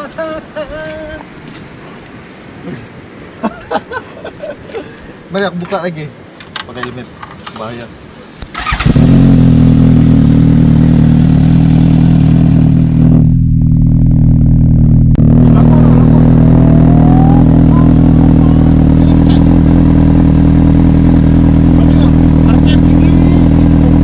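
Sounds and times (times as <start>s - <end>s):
superbike engine revving at limiter: 8.6s - 24.0s.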